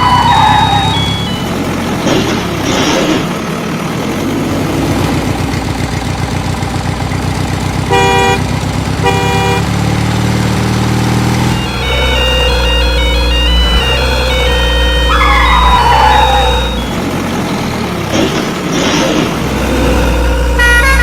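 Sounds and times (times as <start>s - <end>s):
truck engine running: 0.0s - 21.0s
truck horn honks: 7.8s - 9.9s, 11.4s - 17.0s, 20.0s - 21.0s.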